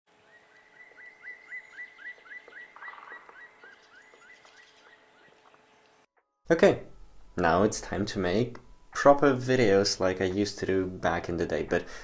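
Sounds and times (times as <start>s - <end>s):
bird calling: 0.1s - 6.1s
buzzy bird trill: 0.1s - 6.1s
forest ambience: 0.1s - 6.1s.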